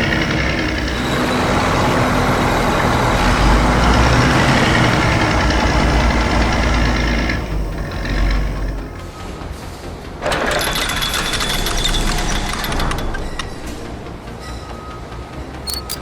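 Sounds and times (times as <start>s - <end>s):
heavy truck engine rumbling: 0.0s - 9.1s.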